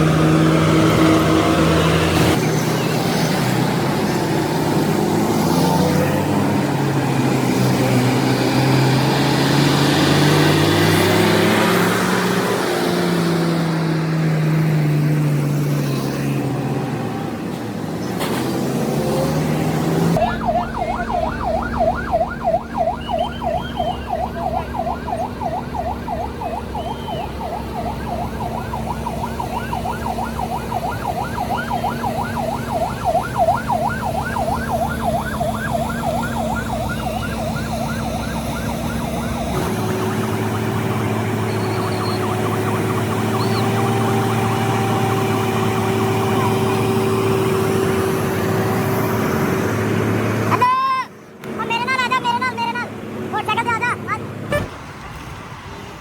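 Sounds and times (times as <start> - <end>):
siren sweeping up and down: 0.0 - 17.4, 18.9 - 50.6
vehicle engine rumble: 0.0 - 56.0.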